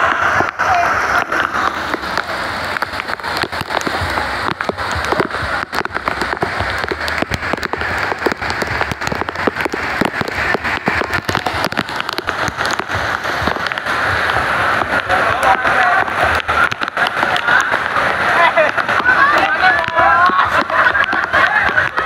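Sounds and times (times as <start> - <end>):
heavy rain falling: 0.0 - 22.0
raindrops hitting close by: 0.0 - 22.0.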